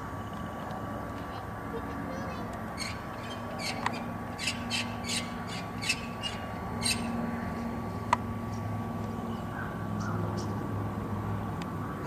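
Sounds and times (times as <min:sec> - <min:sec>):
bird squawking harsh calls: 0:02.2 - 0:07.2.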